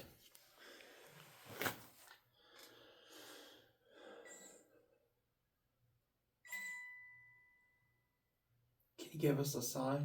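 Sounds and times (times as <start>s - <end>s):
soft breathing: 0.4s - 1.6s, 2.2s - 5.1s
ringing ding: 6.4s - 7.9s.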